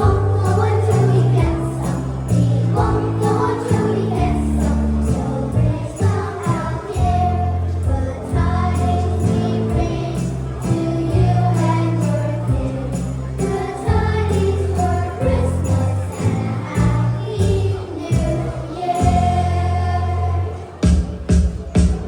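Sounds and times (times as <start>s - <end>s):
small bells shaking in rhythm: 0.0s - 20.4s
people singing: 0.0s - 20.9s
music with steady beat: 20.7s - 22.0s.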